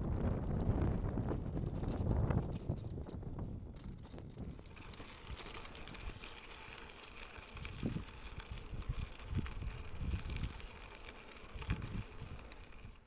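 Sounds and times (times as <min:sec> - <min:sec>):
wind gusting on microphone: 0:00.0 - 0:05.4, 0:07.6 - 0:10.8
bicycle rolling on trail: 0:00.0 - 0:13.0
light rattles and clicks: 0:01.5 - 0:13.0.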